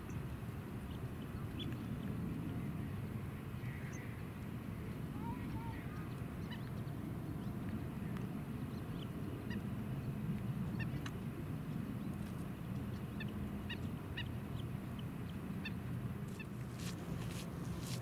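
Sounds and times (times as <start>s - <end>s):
birds chirping: 11.8s - 18.0s.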